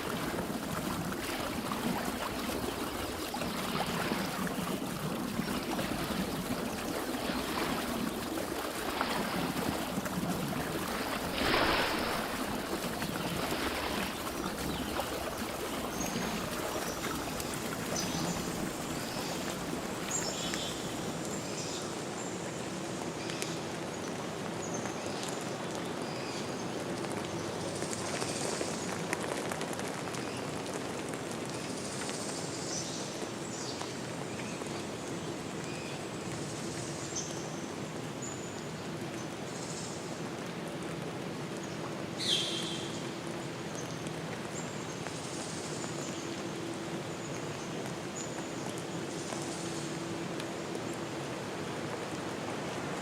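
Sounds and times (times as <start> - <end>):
water splash: 0.0 - 21.5
running water surging: 0.0 - 32.1, 33.1 - 53.0.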